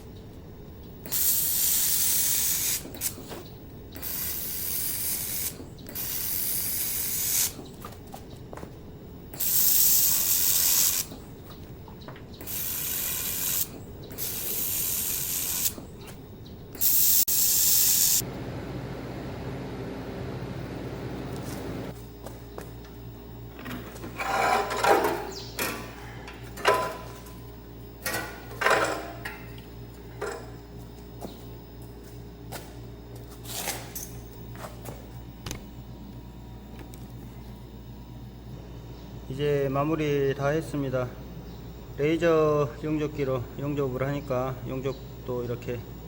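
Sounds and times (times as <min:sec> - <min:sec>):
laser welder hissing: 0:01.0 - 0:07.7, 0:09.3 - 0:11.3, 0:12.4 - 0:16.1, 0:16.7 - 0:18.2.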